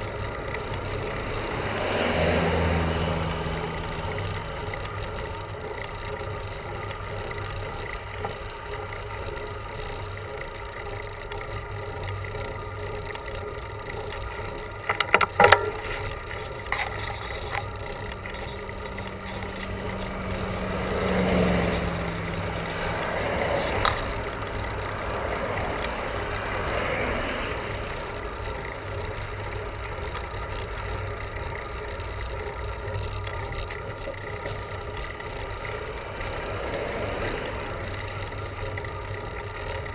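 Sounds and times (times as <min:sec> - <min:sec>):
motor vehicle passing: 0:00.0 - 0:07.2, 0:15.5 - 0:31.0, 0:34.0 - 0:38.8
road and wind noise: 0:00.0 - 0:39.9
sharp bicycle clicks: 0:00.0 - 0:39.9.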